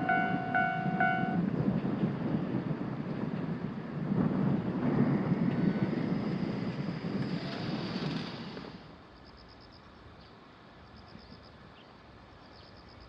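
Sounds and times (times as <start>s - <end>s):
train wheels rumbling on rails: 0.0s - 9.2s.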